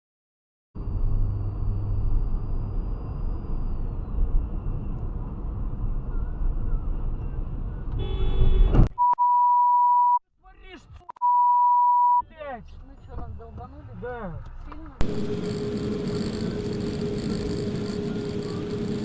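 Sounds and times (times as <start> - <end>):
vehicle road and engine rumble: 0.8 - 8.9, 12.6 - 19.0.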